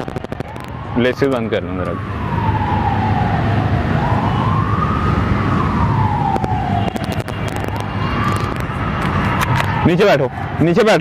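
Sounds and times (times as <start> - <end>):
sharp clicks: 0.0 - 0.8, 6.3 - 9.8
low traffic rumble: 0.0 - 11.0
siren wailing: 0.0 - 11.0.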